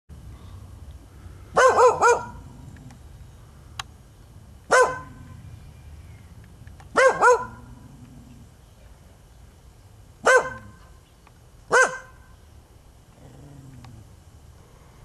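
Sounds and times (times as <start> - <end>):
dog barking: 1.6 - 2.5, 4.7 - 5.4, 6.9 - 7.8, 10.2 - 10.8, 11.7 - 12.3.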